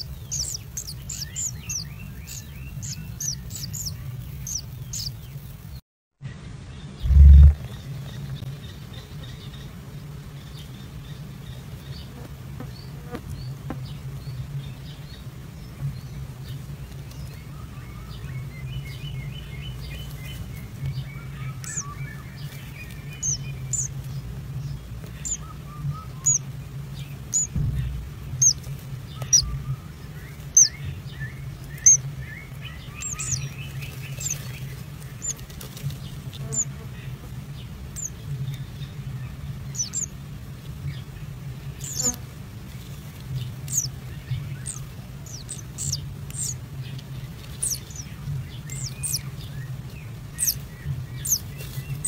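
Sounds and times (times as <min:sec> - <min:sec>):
birds chirping: 0:00.0 - 0:52.0
steady low hum: 0:06.3 - 0:11.8, 0:19.4 - 0:52.0.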